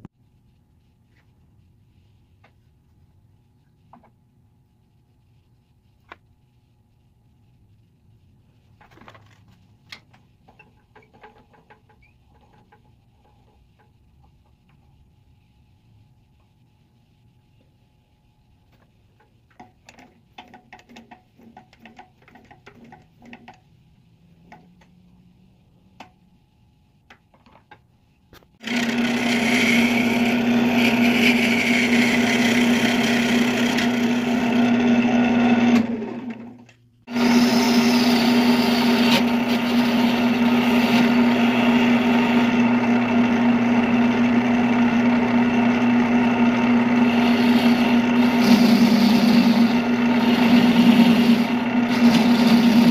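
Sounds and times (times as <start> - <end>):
electric power tool running: 28.6 - 36.4, 37.1 - 52.9.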